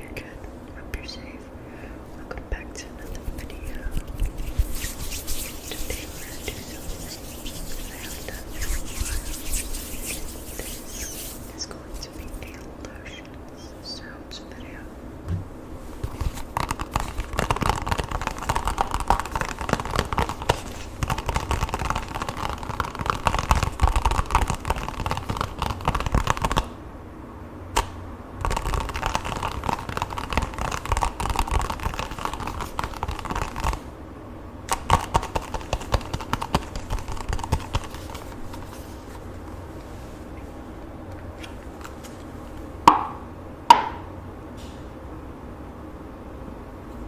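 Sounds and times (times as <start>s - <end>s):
lotion rubbed between hands: 3.0s - 12.6s, 15.7s - 23.8s, 34.9s - 40.4s.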